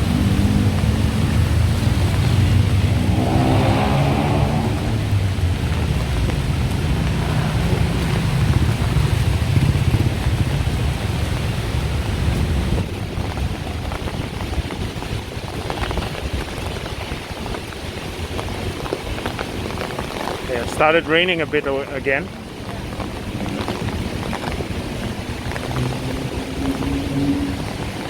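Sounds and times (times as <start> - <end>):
light rain falling: 0.0 - 28.0
traffic engines rumbling: 0.0 - 28.0
tyres hissing on wet road: 0.0 - 28.0.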